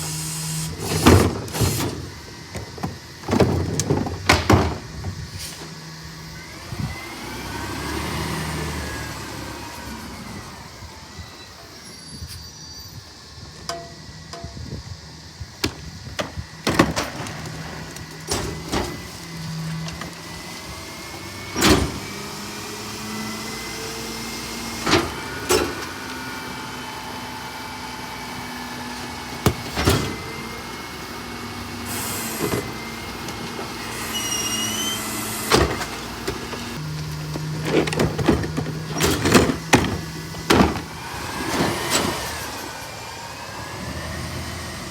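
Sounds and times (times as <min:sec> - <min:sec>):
garbage truck engine running: 0:00.0 - 0:44.9
short rising squeal: 0:10.2 - 0:13.3, 0:33.8 - 0:35.6.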